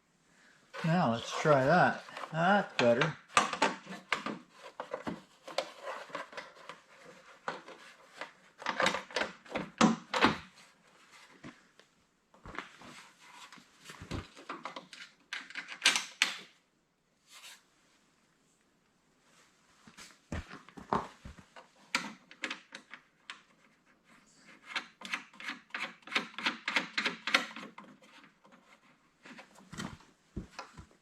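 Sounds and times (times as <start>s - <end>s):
plastic parts being handled: 0.7s - 10.5s.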